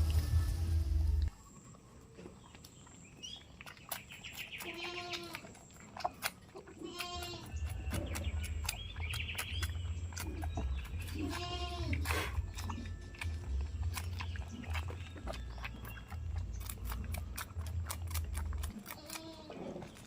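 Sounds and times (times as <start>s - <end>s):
goats bleating: 6.8s - 7.5s, 11.1s - 12.1s.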